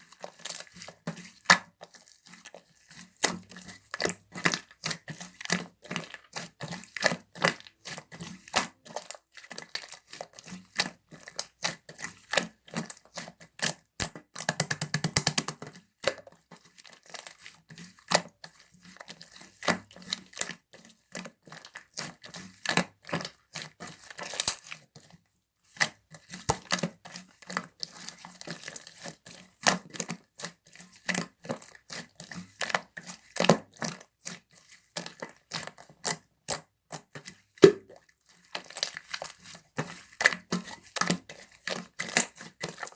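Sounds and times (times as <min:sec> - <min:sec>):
slime squeezed sticky pops: 0:37.6 - 0:38.0.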